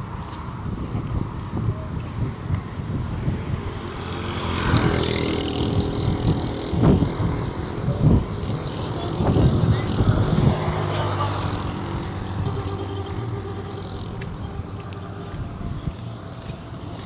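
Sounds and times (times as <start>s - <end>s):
low traffic rumble: 0.0s - 17.0s
vehicle passing: 0.0s - 17.0s.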